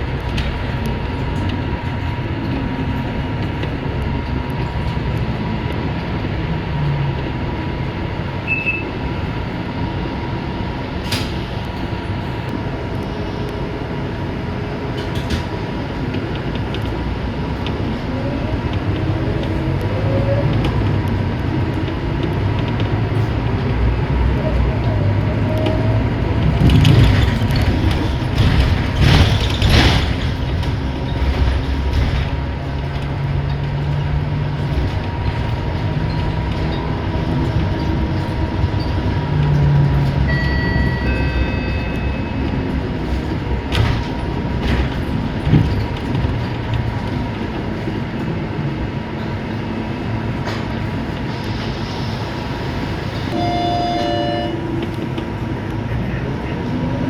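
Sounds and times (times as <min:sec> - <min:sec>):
bus engine rumble: 0:00.0 - 0:57.0
bus jolts: 0:00.0 - 0:57.0
road noise: 0:00.0 - 0:57.0
short electronic tones: 0:53.4 - 0:54.6.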